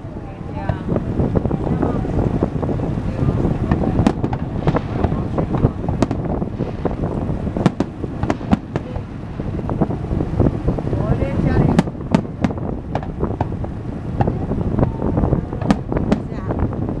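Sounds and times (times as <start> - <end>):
wind rumble on microphone: 0.0 - 17.0
fireworks bursting: 3.5 - 10.9, 11.6 - 16.6.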